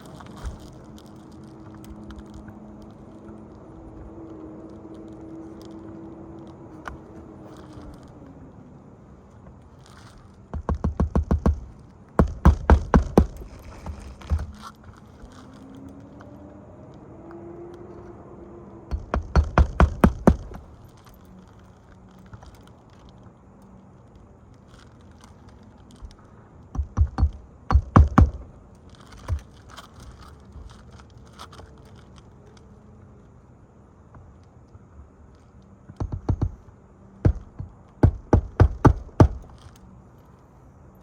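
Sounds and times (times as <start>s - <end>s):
hammer nailing shingles: 9.9s - 15.6s, 18.9s - 21.4s, 26.1s - 31.4s, 35.9s - 39.9s.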